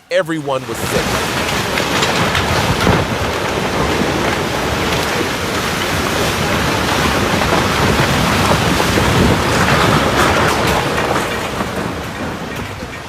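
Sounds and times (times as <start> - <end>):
loud steady rushing noise: 0.0 - 13.0.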